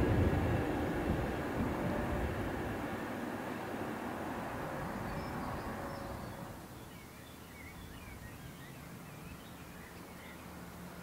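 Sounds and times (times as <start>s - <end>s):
small birds chirping: 4.8s - 11.0s.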